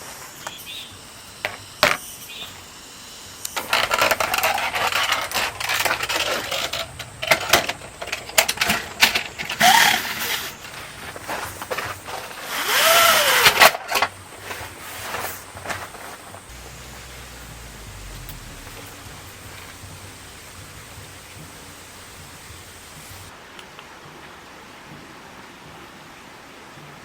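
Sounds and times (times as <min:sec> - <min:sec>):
objects clattering and rustling: 0:03.6 - 0:23.3
short squeaks: 0:09.5 - 0:11.3, 0:11.9 - 0:13.7.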